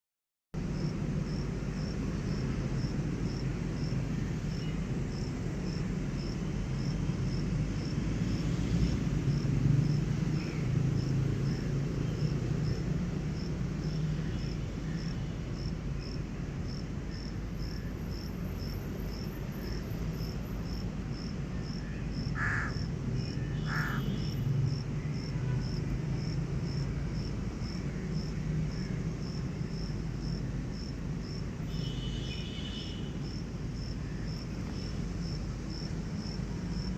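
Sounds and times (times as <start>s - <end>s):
insect chirping: 13.4s - 36.9s.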